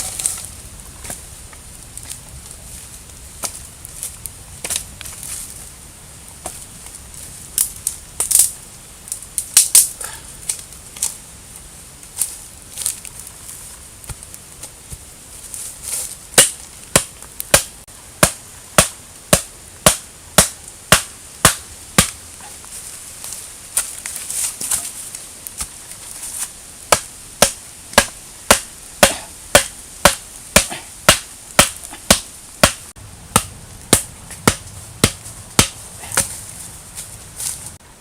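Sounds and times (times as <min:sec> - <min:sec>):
blade chopping: 0:26.9 - 0:36.4.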